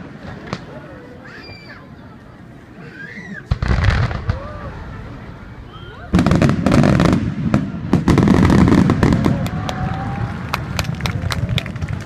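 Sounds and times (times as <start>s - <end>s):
fireworks booms: 3.5s - 12.0s
fireworks crackling: 3.5s - 12.0s.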